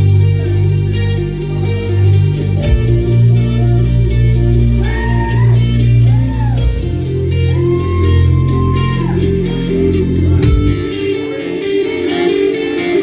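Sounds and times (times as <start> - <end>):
electric guitar gliding lead notes: 0.0 - 13.0
rock band playing: 0.0 - 13.0.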